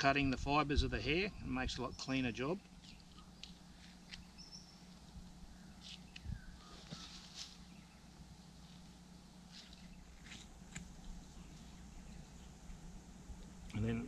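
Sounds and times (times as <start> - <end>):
high bird chirps: 4.1 - 4.9.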